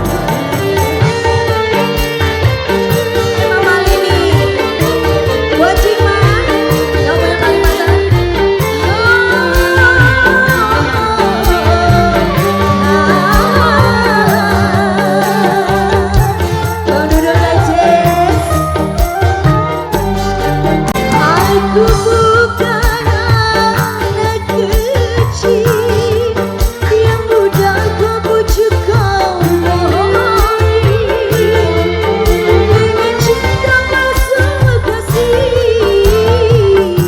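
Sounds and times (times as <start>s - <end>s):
bending melody line: 0.0s - 37.0s
hand drum rhythm: 0.0s - 37.0s.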